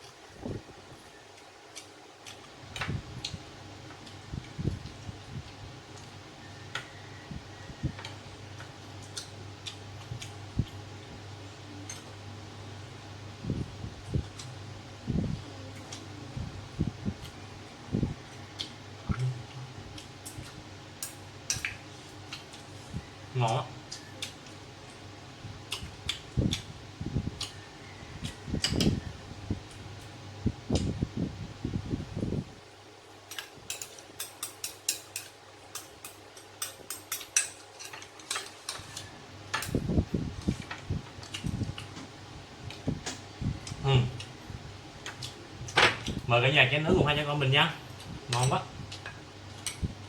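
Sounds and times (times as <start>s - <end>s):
electric fan running: 0.0s - 50.0s
steady low hum: 0.0s - 50.0s
chewing: 1.4s - 2.6s, 8.0s - 10.8s, 27.4s - 29.0s, 45.0s - 45.4s
chopsticks clicking against bowls: 8.0s - 10.4s, 33.3s - 39.8s, 48.0s - 49.8s.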